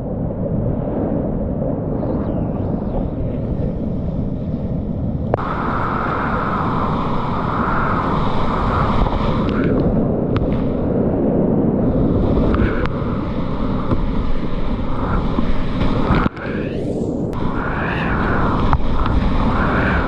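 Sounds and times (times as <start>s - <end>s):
wind buffeting microphone: 0.0s - 20.0s
river whitewater rushing: 5.4s - 9.8s.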